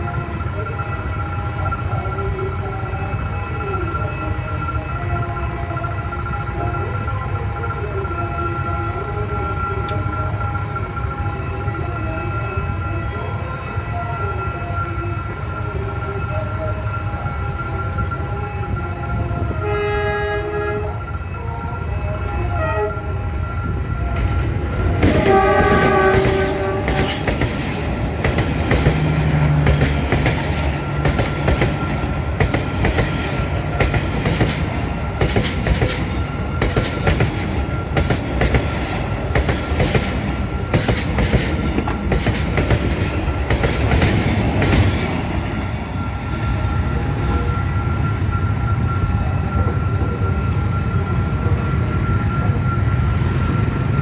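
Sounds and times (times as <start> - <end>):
train rumbling: 0.0 - 54.0
train horn blasts: 19.4 - 21.2, 22.3 - 23.2, 25.0 - 27.5.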